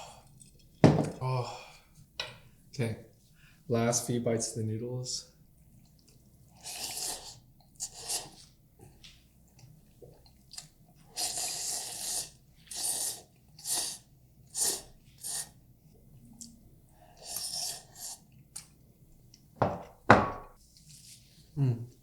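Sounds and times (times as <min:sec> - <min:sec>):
noodles being slurped: 0:05.8 - 0:08.6, 0:10.2 - 0:15.6, 0:17.1 - 0:18.6.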